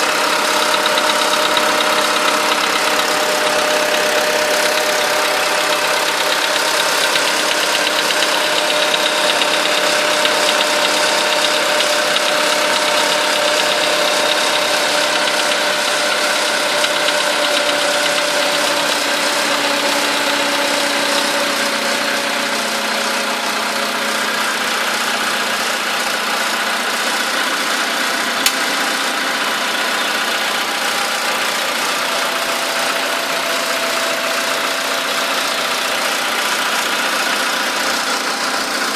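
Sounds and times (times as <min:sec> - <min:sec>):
car engine idling: 0:00.0 - 0:38.9
sharp click: 0:28.4 - 0:28.6.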